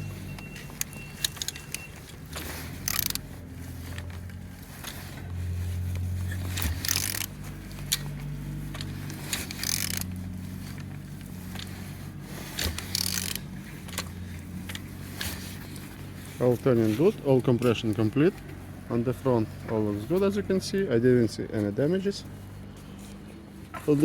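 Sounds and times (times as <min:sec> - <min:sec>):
mechanical clicks and scraping: 0:00.0 - 0:18.6
engine turned over by hand: 0:00.0 - 0:20.5.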